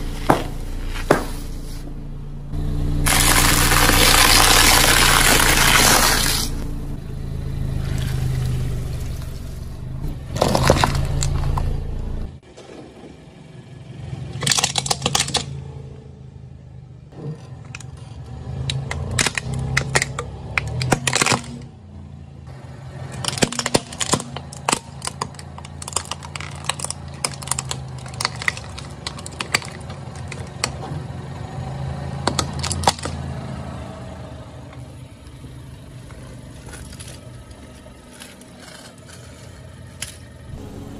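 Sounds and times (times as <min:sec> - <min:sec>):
tyres crushing crunchy objects: 0:00.0 - 0:01.6, 0:03.0 - 0:06.6, 0:10.3 - 0:11.8, 0:23.1 - 0:30.9, 0:36.0 - 0:40.8
car engine hum: 0:00.0 - 0:40.9.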